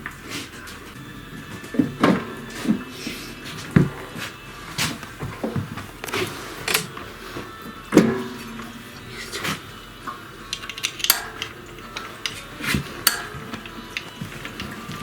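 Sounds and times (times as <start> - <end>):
metal clunks and knocks: 1.8 - 2.9, 7.9 - 8.8.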